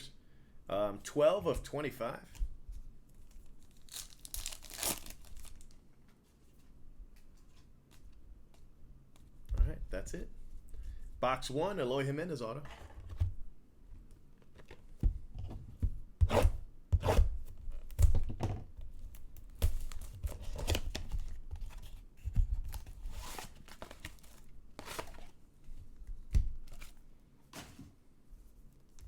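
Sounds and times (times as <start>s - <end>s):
packaging tearing and crinkling: 3.6s - 5.8s.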